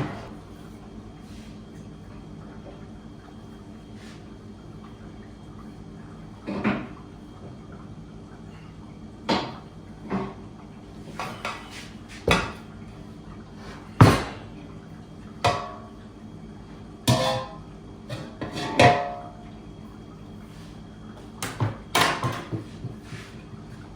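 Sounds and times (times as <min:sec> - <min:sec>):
metal bakeware clattering: 0:17.1 - 0:19.2.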